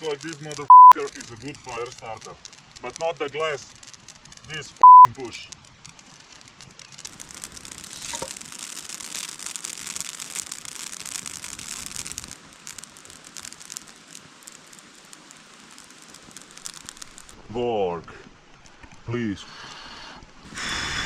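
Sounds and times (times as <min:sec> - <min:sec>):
twigs crackling in fire: 0:00.0 - 0:21.0.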